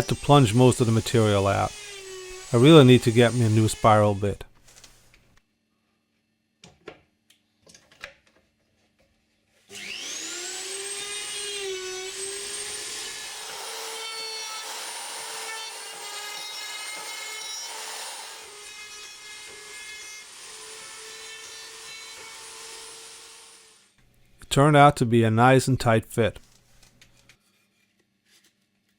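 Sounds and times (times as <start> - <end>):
power tool motor whining: 9.7 - 13.9.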